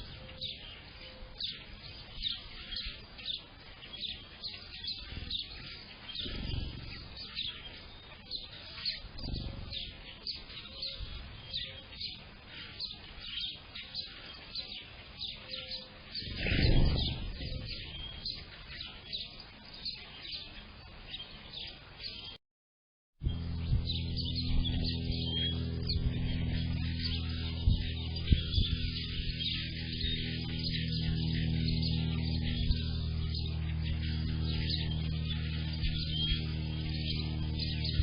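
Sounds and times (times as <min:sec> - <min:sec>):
birds chirping and singing: 0:00.0 - 0:22.4, 0:23.2 - 0:38.0
low rumble: 0:06.1 - 0:07.6, 0:16.2 - 0:18.4, 0:23.2 - 0:38.0.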